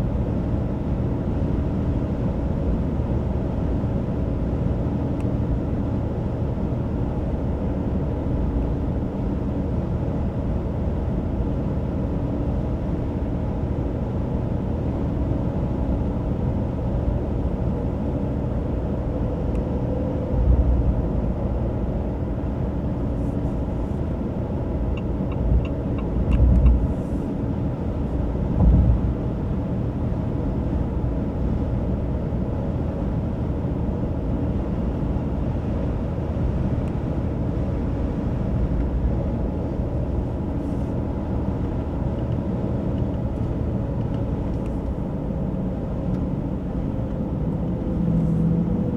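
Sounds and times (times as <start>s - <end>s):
road rumble: 0.0s - 48.9s
heavy low thumps: 28.5s - 29.2s.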